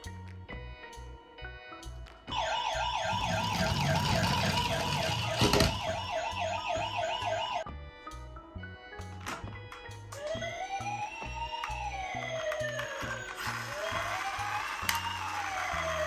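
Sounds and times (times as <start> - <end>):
toy electronic siren warbling: 2.3 - 7.6, 10.2 - 16.0.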